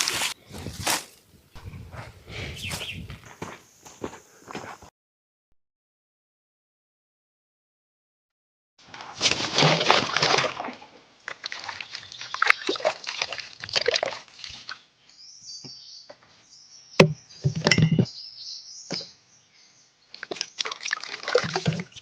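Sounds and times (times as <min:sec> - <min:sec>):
water sloshing and splashing: 0:09.2 - 0:14.9, 0:20.2 - 0:22.0.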